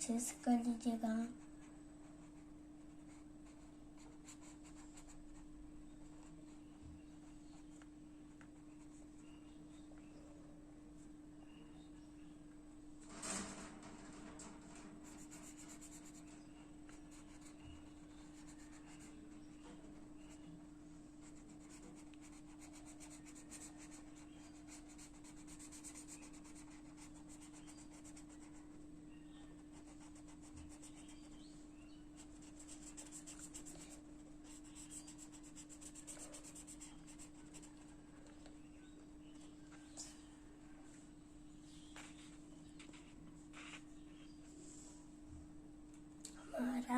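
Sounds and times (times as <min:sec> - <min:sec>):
colouring tool scratching paper: 0:21.3 - 0:28.6, 0:32.2 - 0:37.7.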